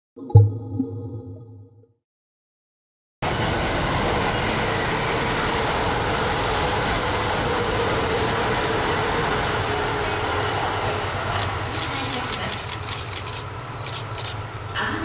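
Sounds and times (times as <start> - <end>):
train wheel and rail noise: 3.2 - 15.0.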